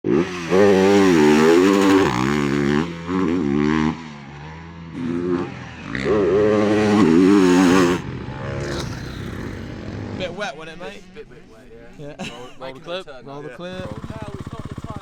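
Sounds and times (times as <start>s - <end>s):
motocross bike engine revving: 0.1s - 10.4s, 13.7s - 15.0s.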